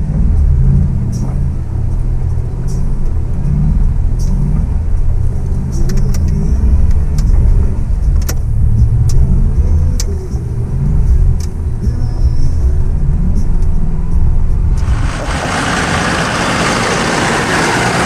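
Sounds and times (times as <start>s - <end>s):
sharp knocks and rattles: 14.8s - 18.0s
truck engine rumble: 14.8s - 18.0s.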